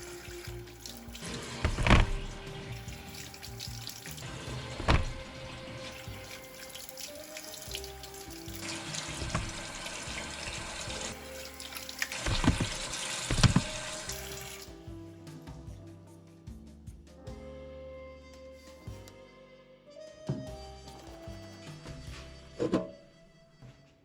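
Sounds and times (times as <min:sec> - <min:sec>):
tap water running into sink: 0:00.0 - 0:14.7
soft background music: 0:00.0 - 0:24.0.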